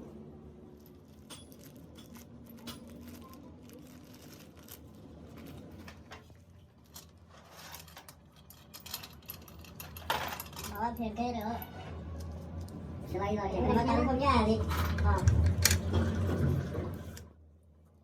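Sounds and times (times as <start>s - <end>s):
small metal parts clicking: 0.7s - 6.0s, 6.8s - 12.8s.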